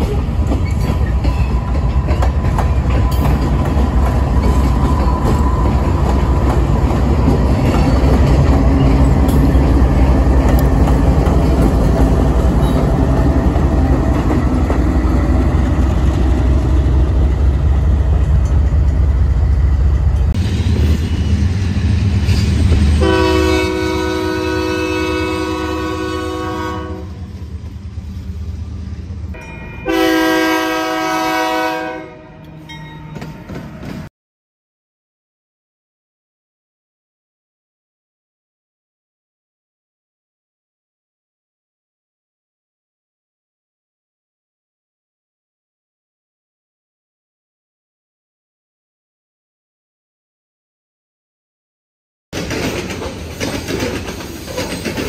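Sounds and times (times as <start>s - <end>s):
diesel locomotive engine rumble: 0.0s - 34.1s
locomotive air horn blasts: 23.0s - 27.3s, 29.8s - 32.5s
wheels clicking over rail joints: 52.4s - 55.0s.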